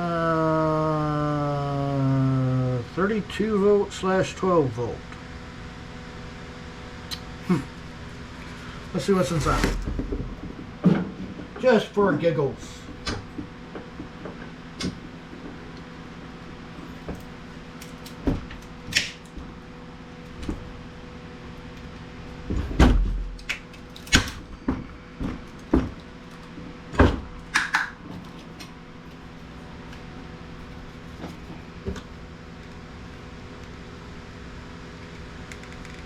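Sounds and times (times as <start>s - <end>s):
steady low hum: 0.0s - 36.0s
heavy thump: 9.2s - 11.6s.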